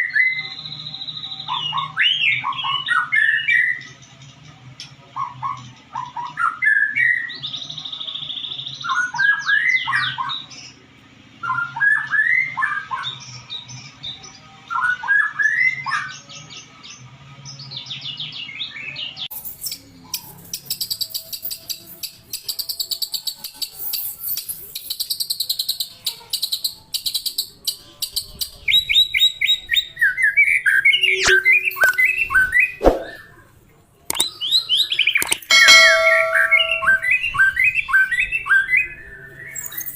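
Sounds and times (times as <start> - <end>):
bird singing whistles and trills: 28.1 - 33.2, 34.1 - 39.9.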